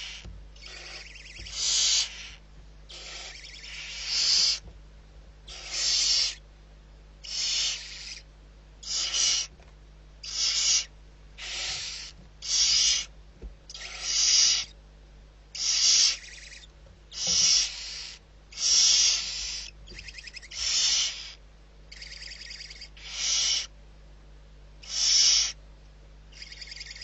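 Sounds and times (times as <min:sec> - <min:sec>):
barn owl hissing calls: 0:00.0 - 0:04.7, 0:05.5 - 0:06.4, 0:07.2 - 0:09.6, 0:10.2 - 0:13.1, 0:13.7 - 0:14.8, 0:15.5 - 0:23.7, 0:24.8 - 0:25.6, 0:26.3 - 0:27.0.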